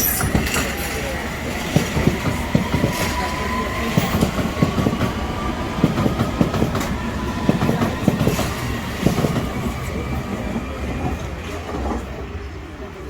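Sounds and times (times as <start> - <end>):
train wheels clacking over rail joints: 0.0 - 9.7
train rumble: 0.0 - 13.0.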